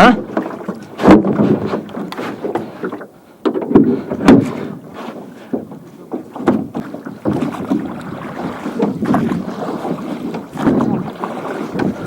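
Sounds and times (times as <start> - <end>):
water splashing: 0.0 - 12.0
knocks against hull: 0.3 - 12.0
wind on microphone: 6.7 - 12.0.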